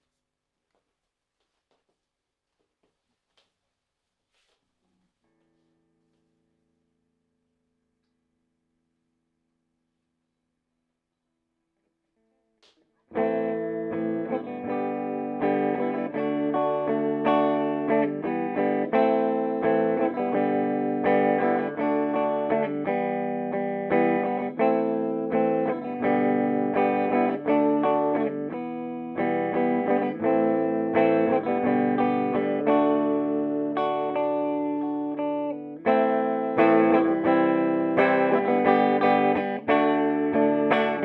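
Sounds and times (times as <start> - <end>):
electric guitar chords: 13.1 - 41.0.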